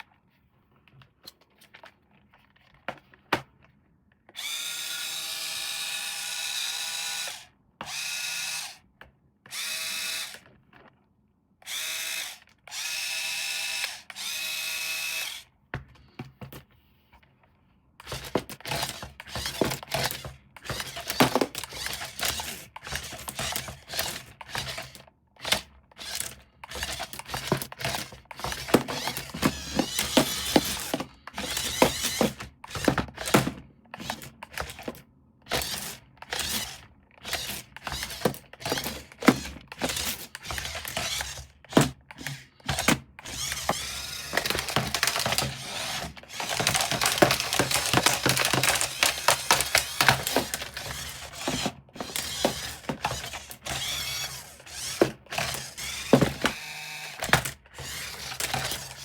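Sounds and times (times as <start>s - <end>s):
small electric motor whirring: 4.4s - 8.8s, 9.5s - 10.5s, 11.6s - 15.5s, 18.0s - 33.4s, 35.5s - 41.6s, 42.2s - 59.0s
rapid clicking and clattering: 46.3s - 52.6s.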